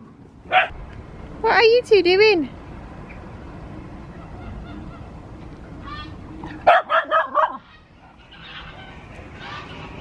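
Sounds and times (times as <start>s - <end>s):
geese honking: 4.1s - 5.2s, 5.8s - 10.0s.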